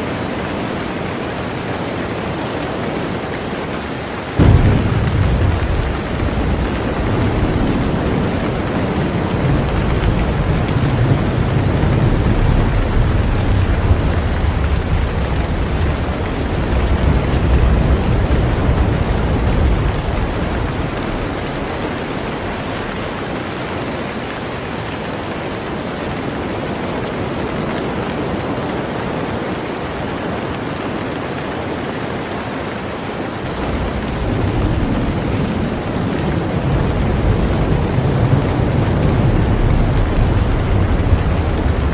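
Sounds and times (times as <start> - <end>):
heavy rain on a boat: 0.0 - 41.9
low rumble: 4.4 - 23.1.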